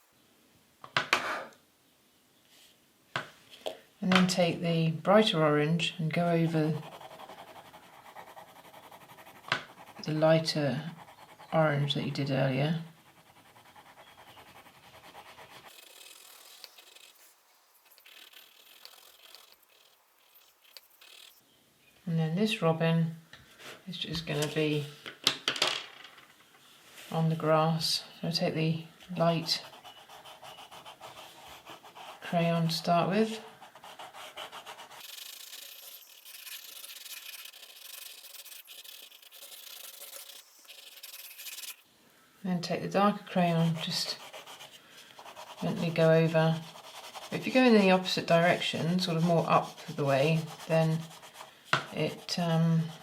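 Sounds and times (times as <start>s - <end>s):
crayon rubbing on paper: 6.4s - 10.2s, 13.0s - 21.4s, 33.3s - 41.8s, 43.6s - 53.0s.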